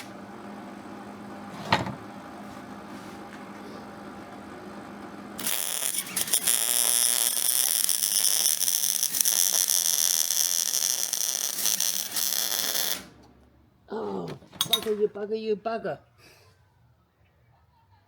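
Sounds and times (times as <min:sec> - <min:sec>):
welding arc crackling: 0:05.4 - 0:13.2.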